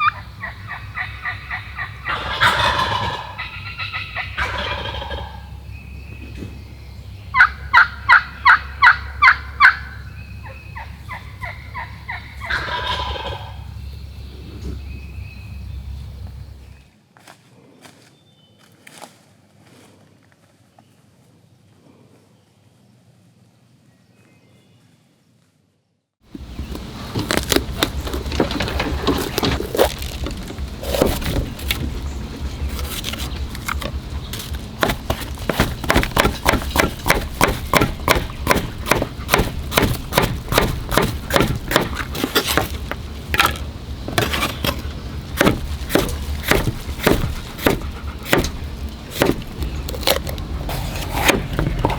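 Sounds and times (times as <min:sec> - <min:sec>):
turkey gobbling: 0:00.0 - 0:05.5, 0:07.4 - 0:13.7
turkey yelps: 0:00.0 - 0:05.5, 0:07.4 - 0:13.6
low wind rumble: 0:00.0 - 0:16.9, 0:26.3 - 0:51.9.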